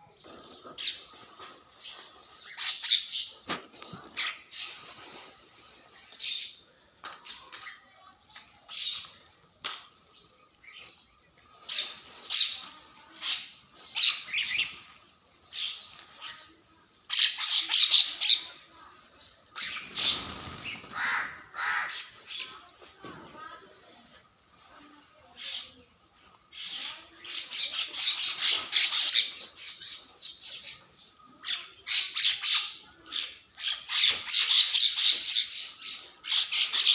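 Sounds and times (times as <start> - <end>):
birds calling: 10.0 - 22.7.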